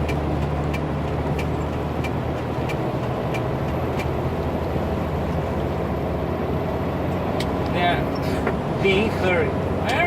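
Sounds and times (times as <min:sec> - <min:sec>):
light regular ticks: 0:00.0 - 0:04.2
truck engine droning: 0:00.0 - 0:10.0.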